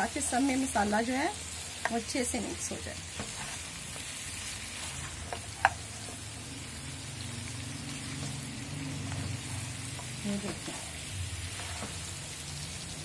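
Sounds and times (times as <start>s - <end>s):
meat sizzling in hot oil: 0.0s - 13.0s
spatula stirring in pan: 3.0s - 6.8s, 7.8s - 13.0s
spatula knocking on pan: 5.3s - 5.8s.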